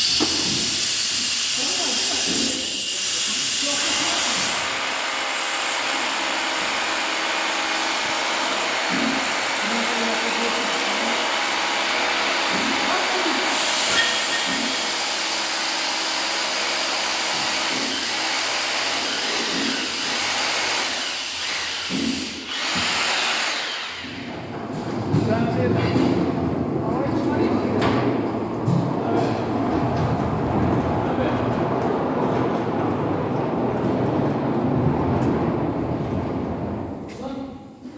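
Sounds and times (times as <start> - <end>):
machinery hissing: 0.0 - 4.6, 12.7 - 16.0
faint machinery hum: 24.3 - 37.9.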